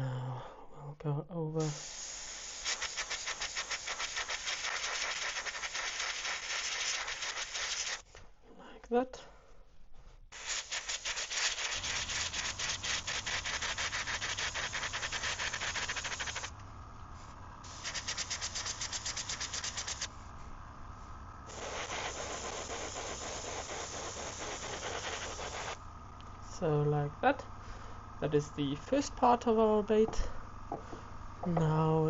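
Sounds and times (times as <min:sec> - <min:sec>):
airbrush spraying paint: 0:01.6 - 0:08.1, 0:10.3 - 0:16.6, 0:17.2 - 0:20.4, 0:21.4 - 0:25.8.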